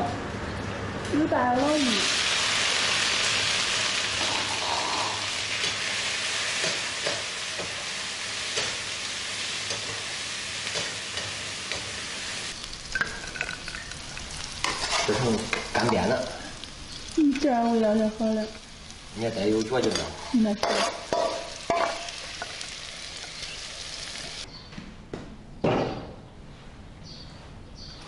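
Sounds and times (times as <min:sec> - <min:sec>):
food sizzling in a wok: 0:01.3 - 0:24.5
spatula scraping a wok: 0:14.6 - 0:15.9, 0:19.8 - 0:22.6.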